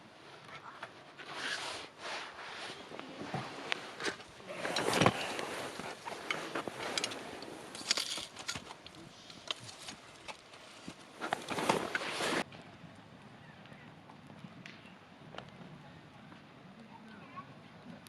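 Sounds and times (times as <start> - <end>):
campfire crackling and popping: 3.0 - 16.9.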